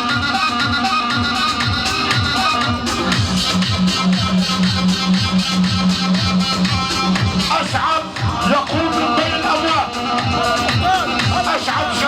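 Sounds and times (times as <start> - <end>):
electronic keyboard music: 0.0 - 12.0
steady drum beat: 1.2 - 12.0.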